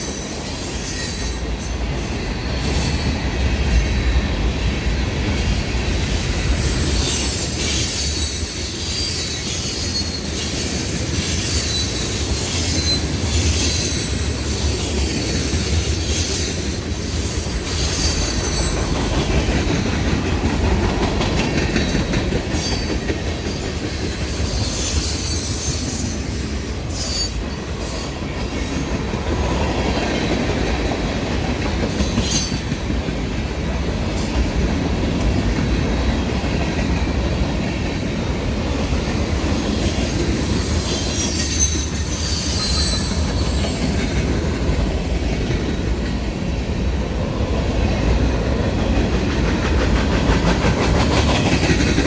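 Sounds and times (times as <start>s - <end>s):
high-pitched wheel squeals: 0.0s - 3.4s, 6.2s - 14.3s, 17.2s - 18.8s, 24.4s - 28.2s, 40.5s - 43.8s
railroad cars rumbling past: 0.0s - 52.0s.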